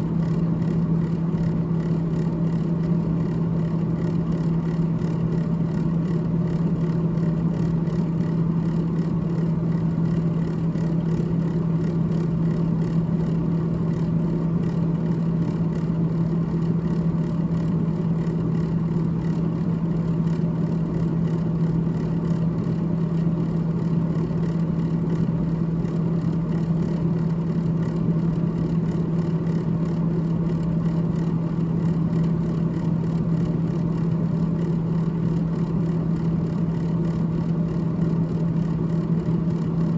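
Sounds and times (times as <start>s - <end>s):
freezer fan humming: 0.0s - 39.9s.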